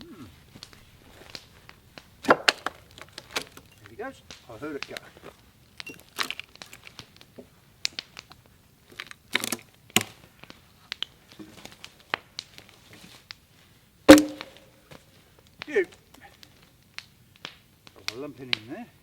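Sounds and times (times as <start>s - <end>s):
log splitting and crackling: 0.0s - 19.0s
loud ringing strike: 14.1s - 14.7s.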